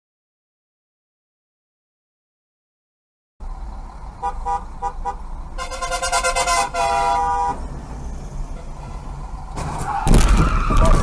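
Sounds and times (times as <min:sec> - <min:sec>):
road and engine rumble: 0:03.4 - 0:11.0
car horn beeping: 0:04.2 - 0:07.7, 0:08.6 - 0:09.2
car horn long blast: 0:04.2 - 0:07.7, 0:08.6 - 0:09.2.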